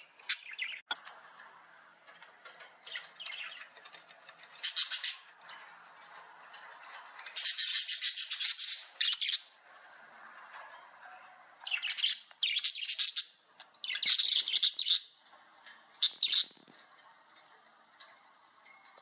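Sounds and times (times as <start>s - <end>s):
bird chirping and squawking: 0.0s - 1.0s, 2.8s - 5.4s, 7.2s - 9.6s, 11.6s - 15.2s, 16.0s - 16.7s.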